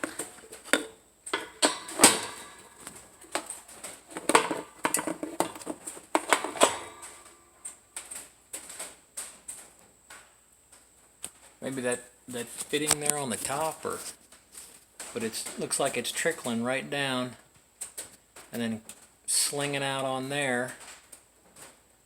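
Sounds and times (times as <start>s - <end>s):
hands handling objects clattering: 0.0s - 10.2s, 12.3s - 16.8s.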